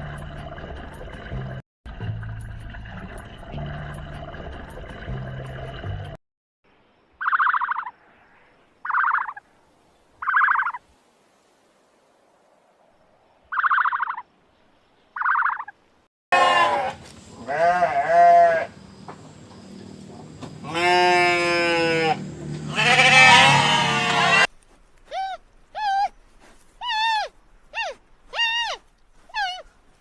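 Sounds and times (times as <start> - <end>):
sheep bleating: 16.4 - 18.7, 20.6 - 24.5.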